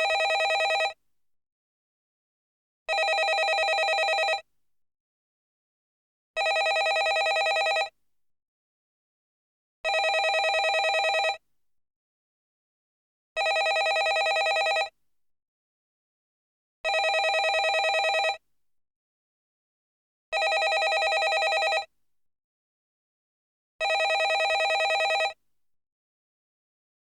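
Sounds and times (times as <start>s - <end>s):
telephone bell ringing: 0.0s - 1.0s, 2.9s - 4.4s, 6.4s - 7.9s, 9.9s - 11.4s, 13.4s - 14.9s, 16.9s - 18.4s, 20.4s - 21.9s, 23.8s - 25.4s.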